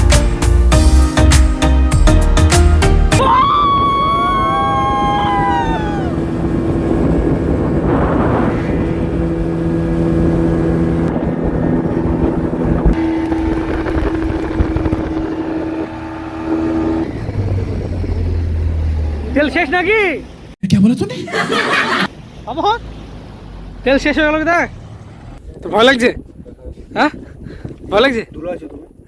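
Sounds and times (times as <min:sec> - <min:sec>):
falling whistle-like tones: 0:03.1 - 0:09.1
wind and water wash: 0:03.2 - 0:19.4
motorboat engine running: 0:03.2 - 0:20.6.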